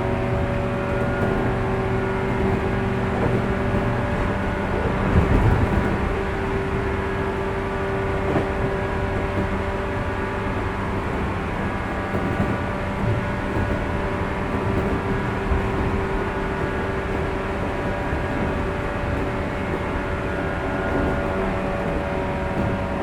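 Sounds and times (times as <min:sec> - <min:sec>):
train motor hum: 0:00.0 - 0:23.0
wheels rumbling on rail: 0:00.0 - 0:23.0.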